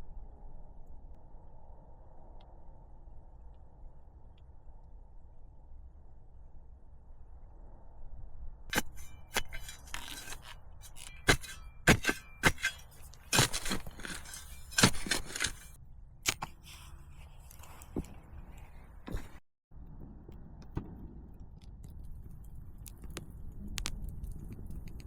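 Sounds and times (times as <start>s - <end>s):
scraping and rustling: 8.7s - 19.4s.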